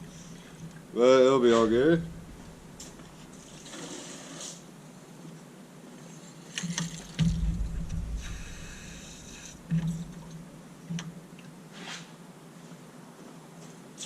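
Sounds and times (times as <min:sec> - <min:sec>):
liquid slurping and gurgling: 0:03.4 - 0:04.6
sharp knocks: 0:06.7 - 0:11.2
heavy thump: 0:07.2 - 0:10.6.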